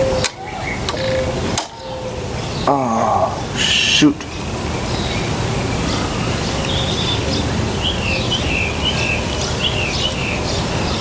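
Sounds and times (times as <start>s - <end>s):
outdoor background noise: 0.0s - 11.0s
small bird chirping: 4.3s - 11.0s.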